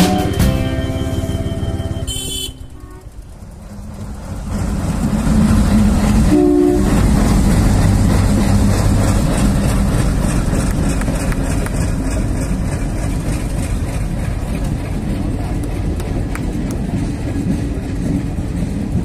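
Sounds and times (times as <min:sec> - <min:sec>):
background music: 0:00.0 - 0:02.4
train horn toot: 0:00.0 - 0:03.2, 0:06.3 - 0:07.1
diesel locomotive rumble: 0:00.0 - 0:19.0
train wheel noise: 0:00.0 - 0:19.0.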